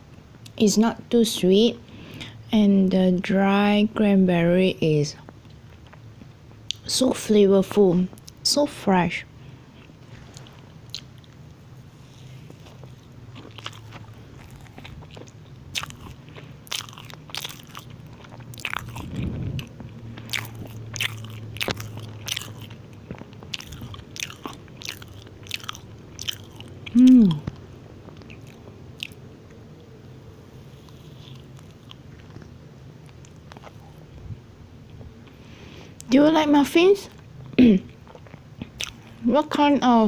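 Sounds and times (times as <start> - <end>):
chewing soft muffin: 5.2 - 7.2, 9.3 - 36.2, 37.0 - 39.6
person humming: 26.9 - 27.5.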